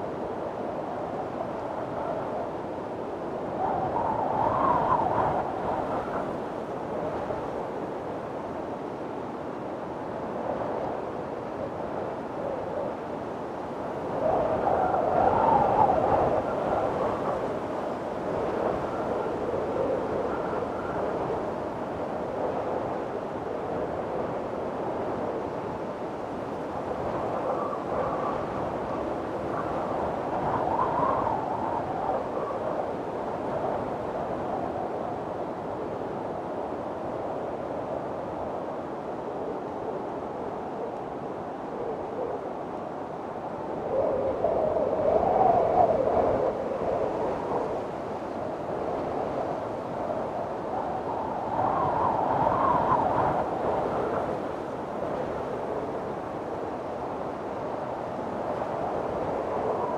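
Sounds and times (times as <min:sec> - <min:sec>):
strong wind howling: 0:00.0 - 0:59.9
wind blowing: 0:39.8 - 0:59.9.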